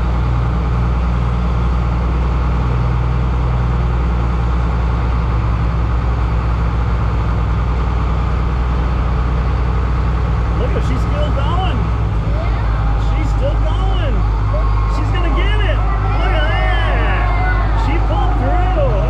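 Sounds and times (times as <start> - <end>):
heavy engine humming: 0.0 - 19.0.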